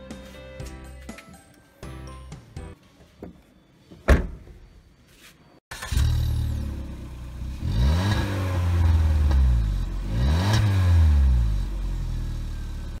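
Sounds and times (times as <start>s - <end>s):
car engine revving from idle: 5.8s - 13.0s.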